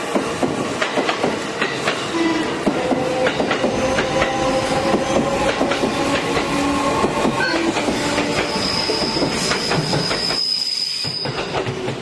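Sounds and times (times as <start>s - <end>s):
low train rumble: 0.0s - 10.4s
train wheels clacking over rail joints: 0.0s - 12.0s
high wheel squeal: 7.4s - 11.6s.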